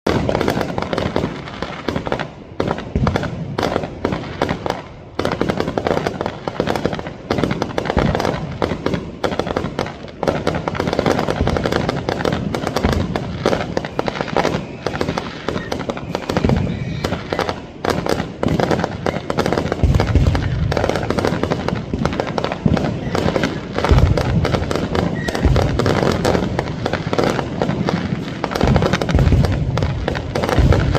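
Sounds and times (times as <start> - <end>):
firecrackers crackling: 0.0 - 30.9
fireworks booming: 0.0 - 30.9.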